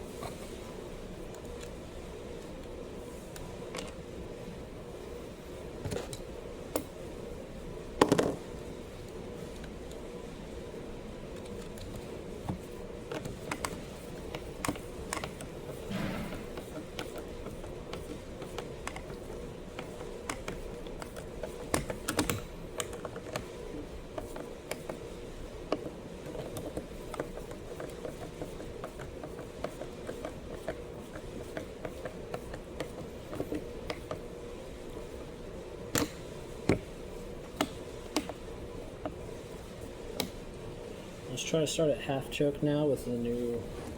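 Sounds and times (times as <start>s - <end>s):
sharp knocks: 15.9s - 16.6s.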